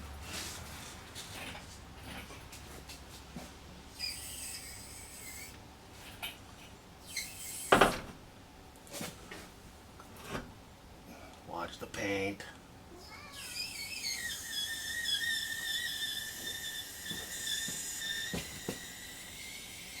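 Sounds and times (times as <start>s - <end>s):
metal squeak: 4.0s - 6.3s, 7.0s - 7.9s, 13.0s - 20.0s
metal rubbing: 13.4s - 20.0s.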